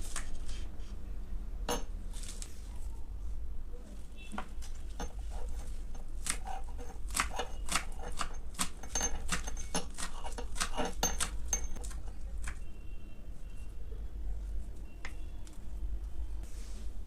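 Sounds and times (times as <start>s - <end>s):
utensils and dishes clicking: 4.9s - 12.6s.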